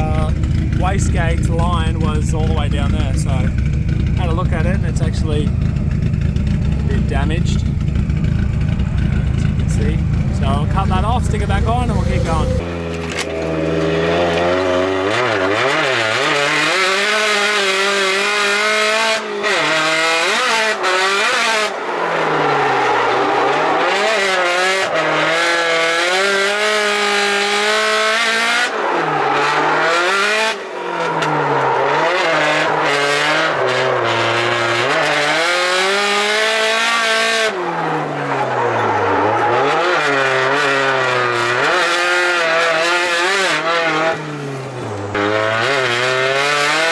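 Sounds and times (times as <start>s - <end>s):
car engine revving hard: 0.0s - 46.9s
tyres squealing: 14.3s - 46.9s.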